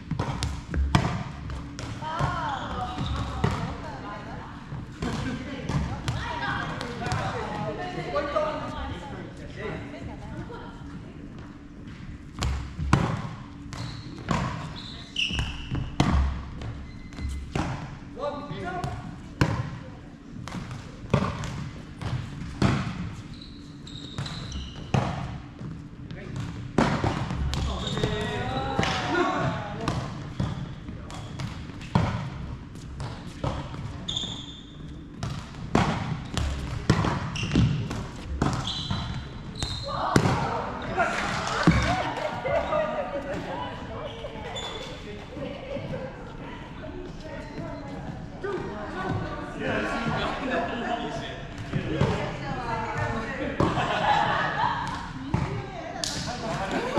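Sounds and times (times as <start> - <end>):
shoe squeaks on floor: 2.1 - 3.4, 13.6 - 17.5, 23.1 - 25.4, 27.6 - 28.8, 30.2 - 31.8, 33.9 - 35.0, 36.1 - 40.0, 43.8 - 45.2, 47.2 - 48.3.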